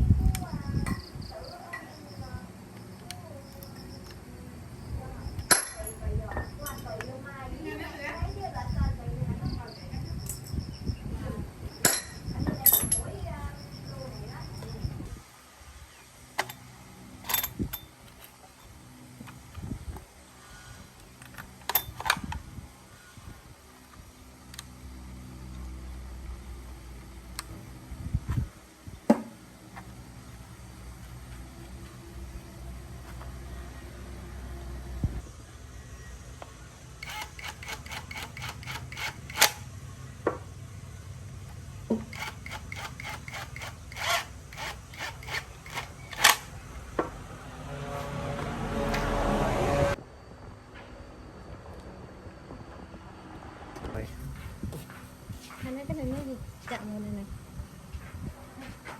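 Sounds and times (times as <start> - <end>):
low hum: 43.3 - 54.4.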